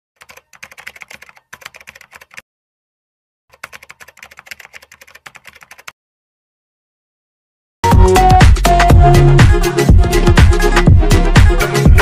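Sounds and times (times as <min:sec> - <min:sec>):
rapid keyboard key clicks: 0:00.2 - 0:02.4, 0:03.5 - 0:06.0.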